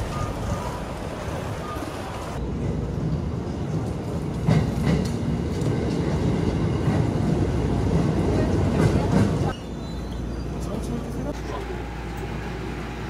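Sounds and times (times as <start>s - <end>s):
train low rumble: 0.0s - 13.0s
train wheel clacks: 4.3s - 6.2s.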